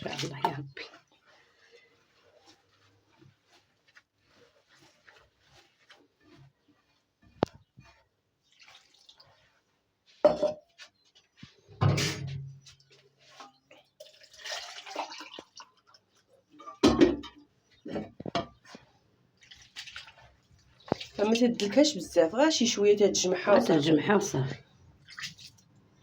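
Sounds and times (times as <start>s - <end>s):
dough squishing by hand: 0.0s - 11.8s, 12.5s - 16.5s
bowl knocking: 10.2s - 10.6s.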